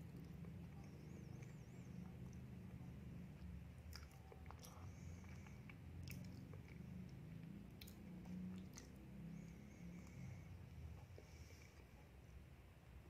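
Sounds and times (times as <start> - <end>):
low steady hum: 0.0 - 13.0
person chewing with lips closed: 0.1 - 9.4.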